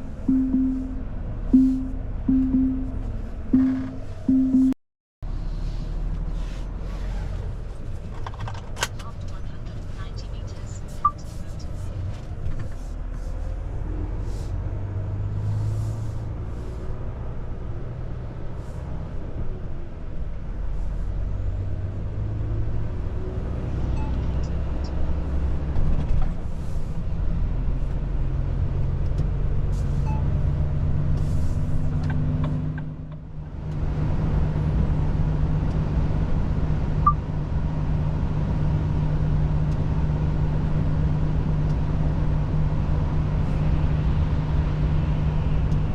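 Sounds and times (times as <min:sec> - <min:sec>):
truck diesel engine droning: 0:00.0 - 0:07.6
road rumble: 0:00.0 - 0:45.9.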